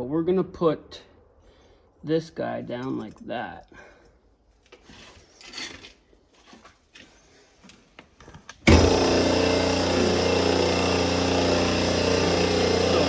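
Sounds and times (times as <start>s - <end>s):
machine humming: 8.7s - 13.0s.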